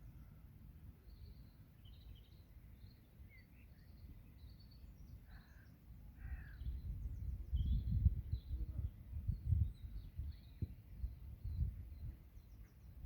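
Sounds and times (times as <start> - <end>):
small birds chirping: 1.0 - 13.0
lower bird call: 1.1 - 8.7.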